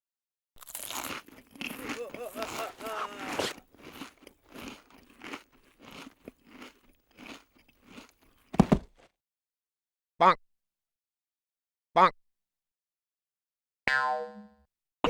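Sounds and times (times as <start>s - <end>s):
heavy thump: 8.6s - 9.0s.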